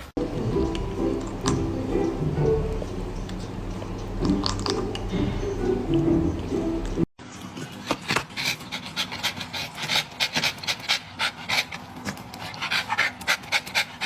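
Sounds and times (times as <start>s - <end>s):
dog panting: 8.1s - 14.0s.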